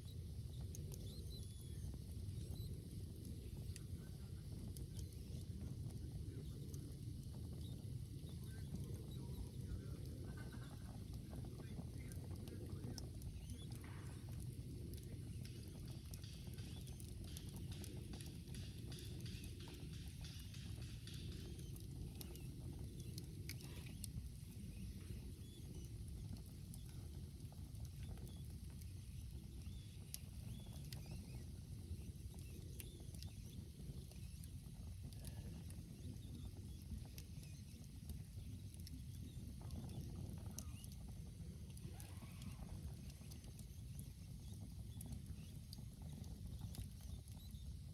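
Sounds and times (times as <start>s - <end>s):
campfire crackling: 0.0s - 47.9s.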